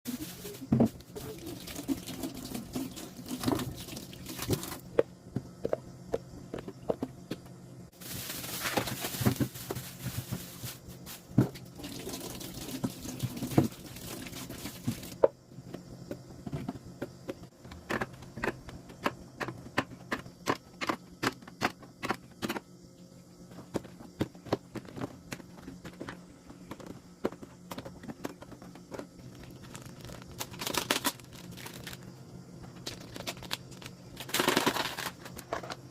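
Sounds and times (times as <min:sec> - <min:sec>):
packaging rustling: 0:08.0 - 0:11.3, 0:29.4 - 0:32.0, 0:32.8 - 0:35.3.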